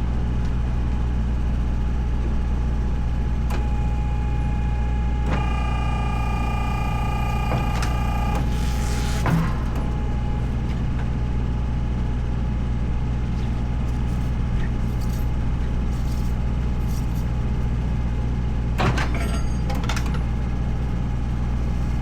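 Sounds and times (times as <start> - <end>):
engine running steadily: 5.3 - 9.4.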